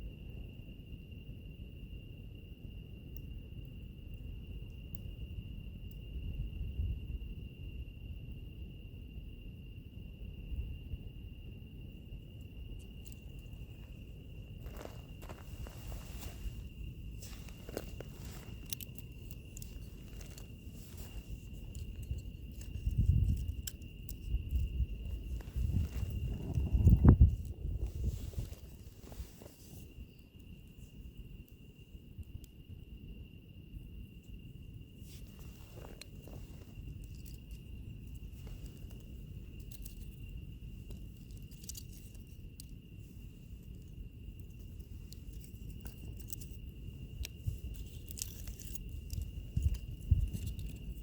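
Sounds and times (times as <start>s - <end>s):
cricket chirping high note: 0.0s - 51.0s
insects trilling: 0.0s - 51.0s
wood fire crackling: 14.6s - 29.6s.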